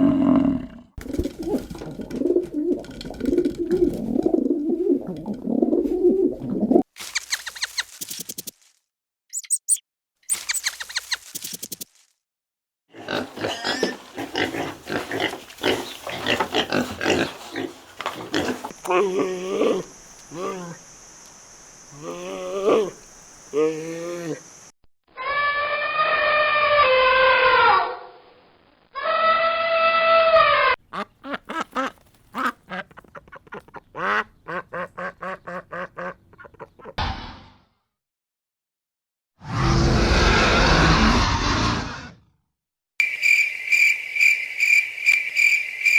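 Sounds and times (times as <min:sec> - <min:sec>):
pig grunting and squealing: 0:00.0 - 0:02.3, 0:12.9 - 0:20.8, 0:39.4 - 0:42.3
ducks quacking: 0:30.8 - 0:37.0.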